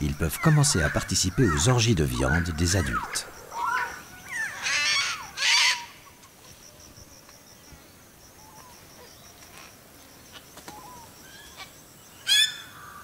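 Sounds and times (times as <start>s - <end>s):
birds screeching: 0.0s - 6.4s, 10.7s - 13.0s.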